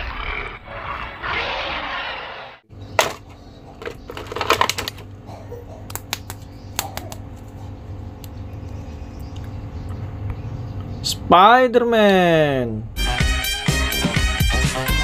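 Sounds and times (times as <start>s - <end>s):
plastic packaging clicks and crackles: 3.8s - 5.1s.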